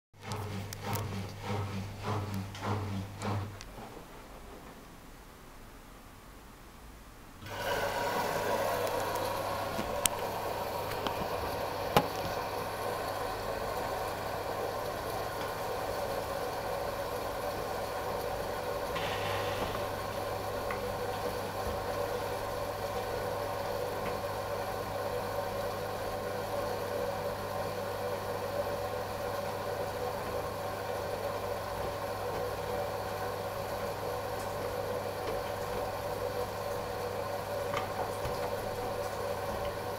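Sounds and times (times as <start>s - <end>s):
washing machine running: 0.1s - 5.0s, 7.4s - 39.9s.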